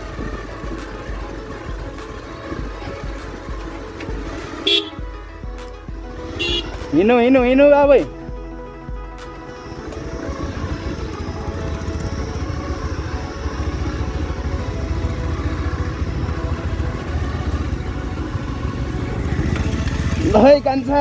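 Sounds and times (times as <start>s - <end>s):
motorcycle engine rumbling: 0.0s - 21.0s.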